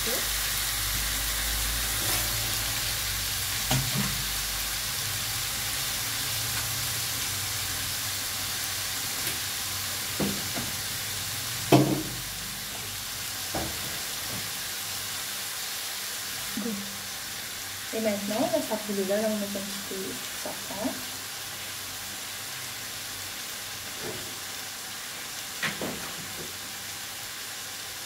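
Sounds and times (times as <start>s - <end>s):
wings sizzling in hot oil: 0.0s - 28.0s
knocks against pan: 11.7s - 12.2s.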